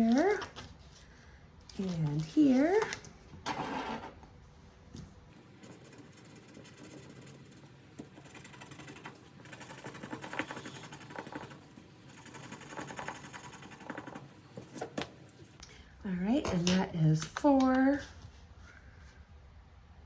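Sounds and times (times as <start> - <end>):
paper banknotes rustling: 0.0 - 3.2.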